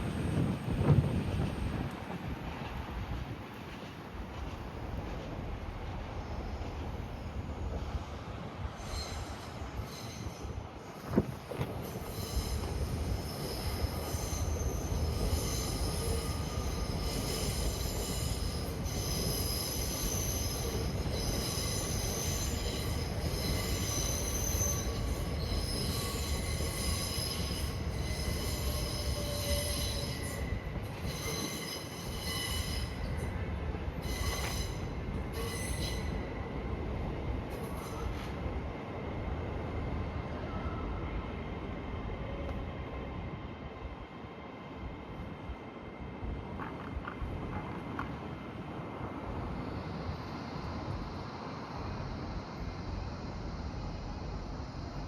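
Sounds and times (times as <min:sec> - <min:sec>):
train low rumble: 0:00.0 - 0:55.0
train wheels squealing: 0:06.1 - 0:38.7, 0:39.6 - 0:43.6, 0:49.3 - 0:55.0.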